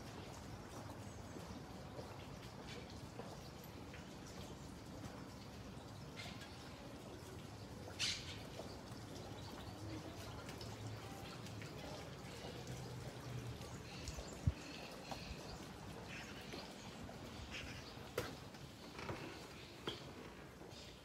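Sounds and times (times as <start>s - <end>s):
birds chirping: 11.1s - 21.0s.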